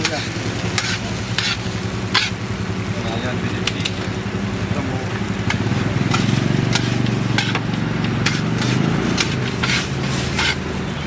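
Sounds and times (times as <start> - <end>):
spatula scraping metal griddle: 0.0 - 2.4, 5.5 - 10.9
vehicle engine rumble: 0.0 - 11.0.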